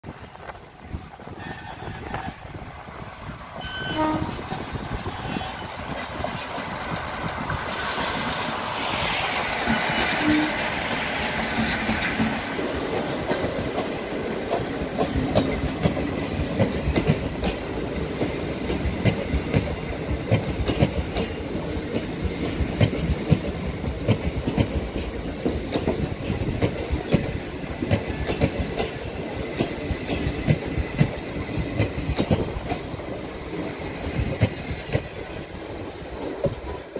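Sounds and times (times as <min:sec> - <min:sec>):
train wheels clattering over rail joints: 0:09.5 - 0:36.9.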